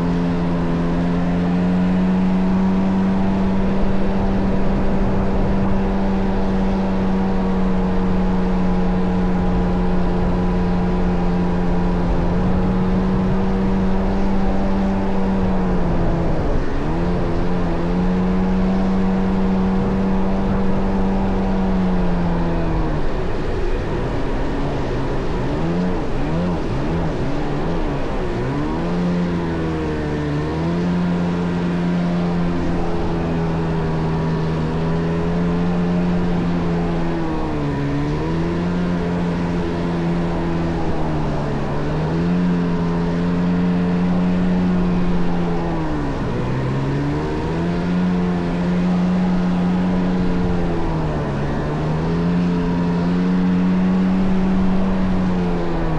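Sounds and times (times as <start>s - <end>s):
jet ski engine running: 0.0s - 55.9s.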